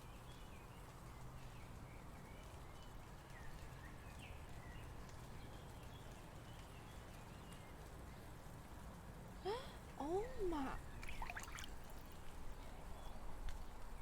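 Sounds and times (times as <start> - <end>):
low steady hum: 9.5 - 13.1.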